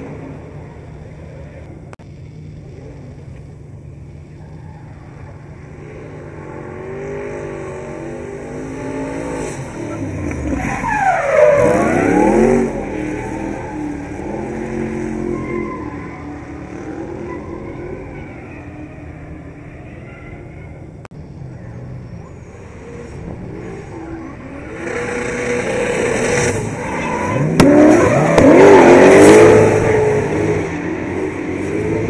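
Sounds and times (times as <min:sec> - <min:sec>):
drift car engine revving hard: 0:05.9 - 0:18.0, 0:22.8 - 0:32.0.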